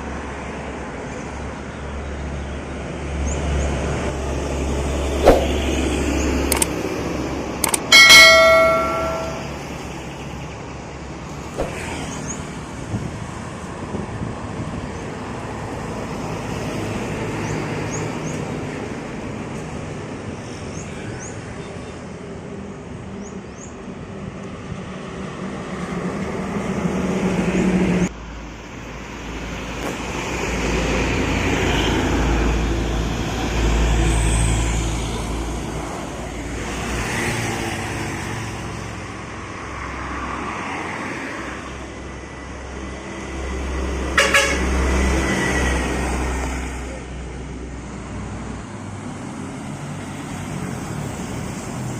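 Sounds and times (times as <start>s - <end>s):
vehicles passing on highway: 0.0s - 51.9s.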